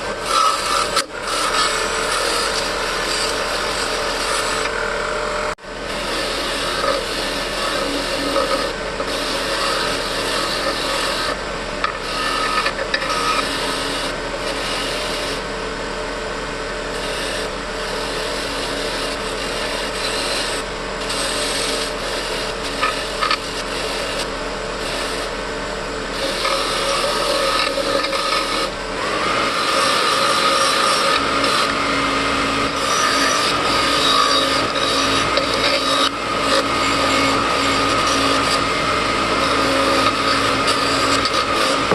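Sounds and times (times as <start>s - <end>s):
abrasive rasping on steel: 0.0s - 4.8s, 5.9s - 15.4s, 16.9s - 25.4s, 26.1s - 41.9s.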